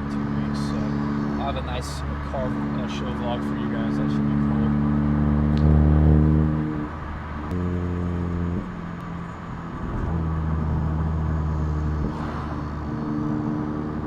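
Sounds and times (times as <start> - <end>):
car exhaust droning: 0.0 - 14.0.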